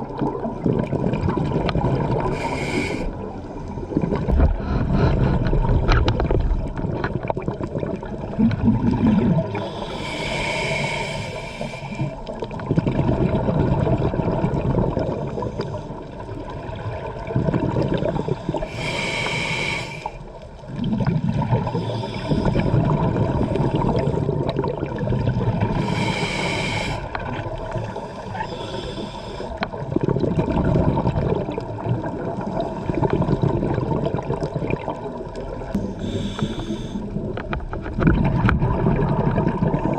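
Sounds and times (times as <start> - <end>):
gurgle of exhaled bubbles: 0.0 - 39.9
hissing regulator inhale: 2.2 - 3.7, 9.5 - 12.3, 18.1 - 20.4, 21.6 - 22.8, 25.6 - 29.7, 35.7 - 37.2.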